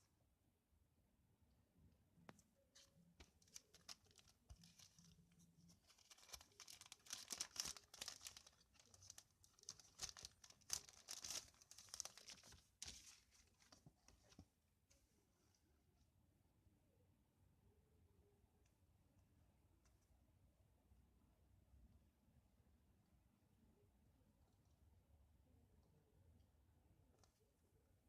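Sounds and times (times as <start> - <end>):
packaging crinkling: 3.2 - 14.4.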